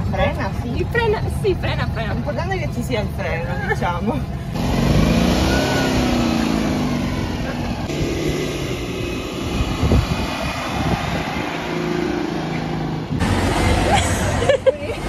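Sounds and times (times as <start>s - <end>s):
buzzy car engine: 4.3s - 15.0s.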